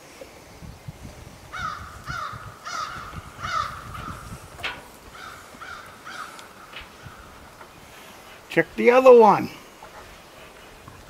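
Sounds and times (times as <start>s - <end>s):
bird calling: 1.5s - 8.5s.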